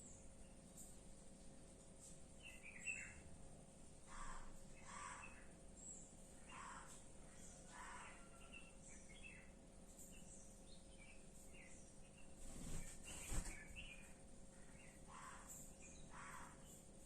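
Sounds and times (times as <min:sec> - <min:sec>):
bird chirping: 0:02.4 - 0:03.3, 0:04.1 - 0:17.0
rustle and thump: 0:12.4 - 0:13.8.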